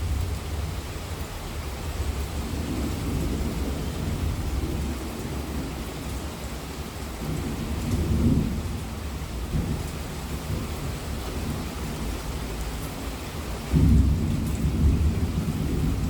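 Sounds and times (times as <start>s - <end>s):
heavy rainfall: 0.0s - 16.0s
low thunder rumbling: 13.7s - 16.0s.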